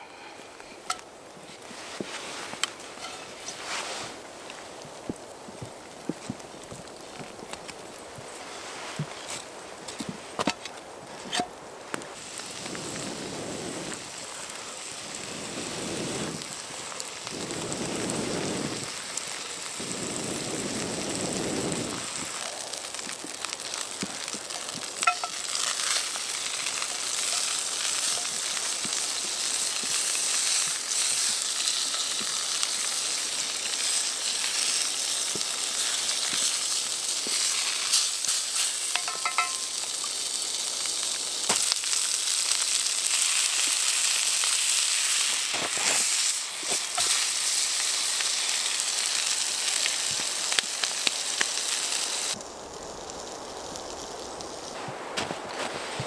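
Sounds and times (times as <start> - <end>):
food sizzling in a pan: 12.1 - 55.0.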